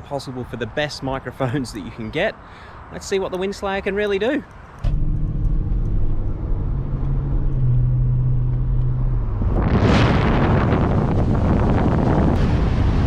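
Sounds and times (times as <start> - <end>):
car driving drone: 4.5 - 13.0
wind noise on microphone: 4.8 - 13.0.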